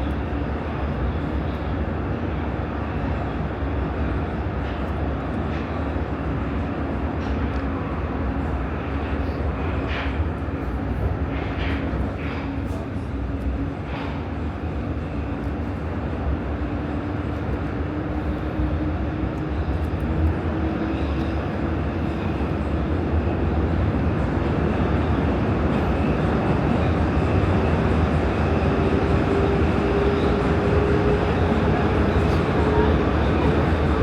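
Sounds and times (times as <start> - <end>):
train wheels rumbling: 0.0 - 34.0.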